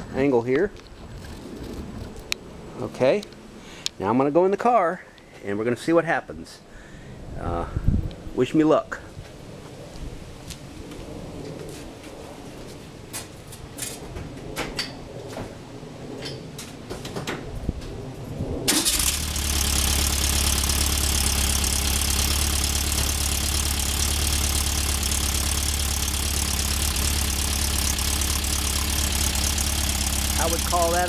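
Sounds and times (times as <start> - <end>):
car engine starting and idling: 18.7 - 31.0.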